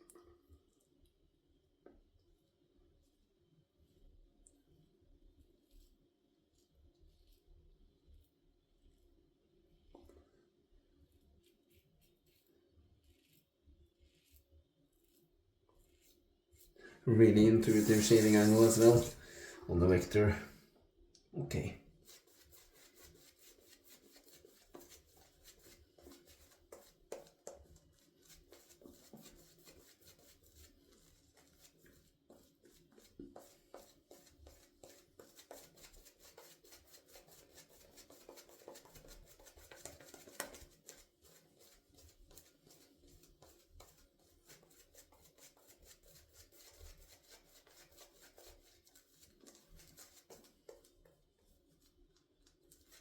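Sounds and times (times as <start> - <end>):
razor scraping stubble: 17.1 - 19.2.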